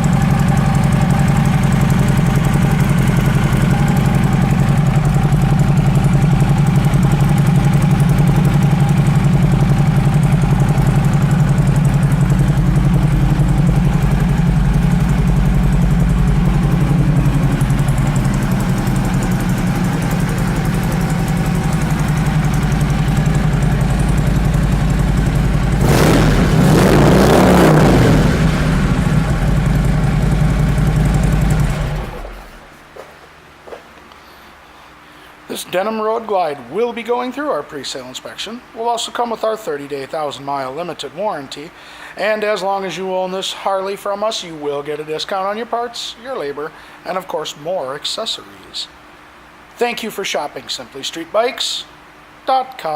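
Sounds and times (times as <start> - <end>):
motorcycle engine idling and revving: 0.0 - 32.8.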